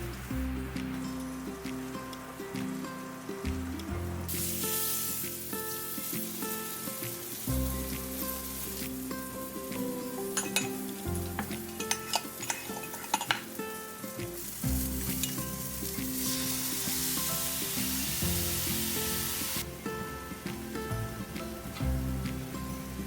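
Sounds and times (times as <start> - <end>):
food sizzling in a pan: 4.2 - 23.0
utensil clicking against pan: 11.4 - 13.5.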